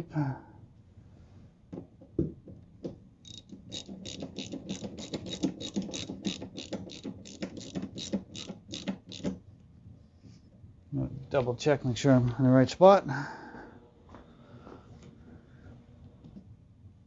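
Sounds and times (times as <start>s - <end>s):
socket ratchet clicking: 3.3s - 9.4s.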